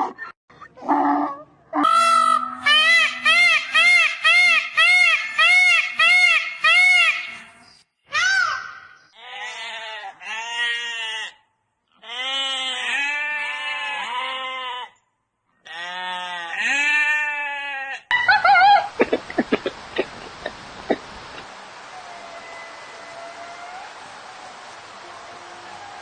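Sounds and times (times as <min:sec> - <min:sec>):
animal bleating: 0:09.2 - 0:15.0, 0:15.6 - 0:18.1.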